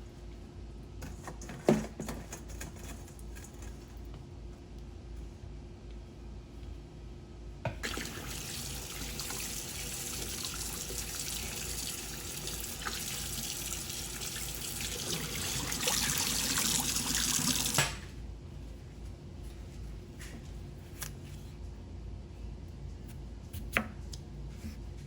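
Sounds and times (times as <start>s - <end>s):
water running into sink: 7.8s - 17.9s.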